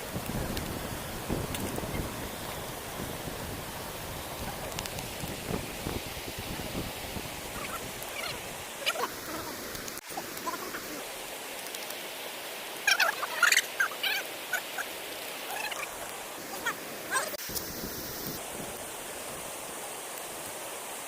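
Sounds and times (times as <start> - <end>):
stream rushing: 0.0 - 21.0
birds chirping: 7.5 - 11.0.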